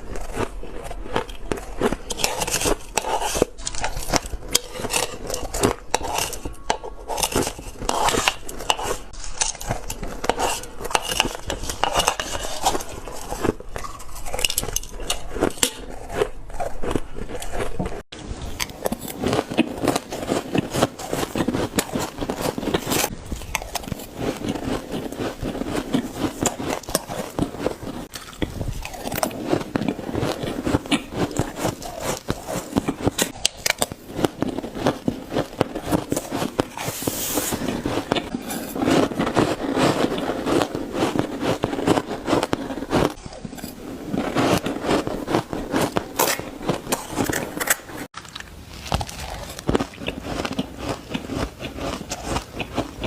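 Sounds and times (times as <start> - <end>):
spoon clinking and scraping dish: 2.2 - 13.3.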